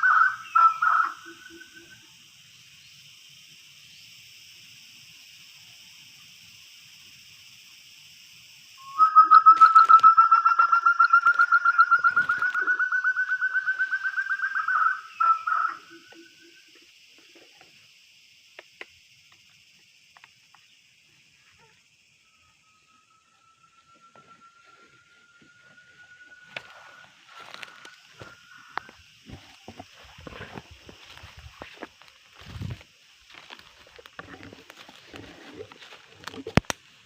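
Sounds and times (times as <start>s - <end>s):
quail pulsed call: 0.0s - 2.0s, 8.8s - 16.8s
insects shrilling: 0.0s - 37.0s.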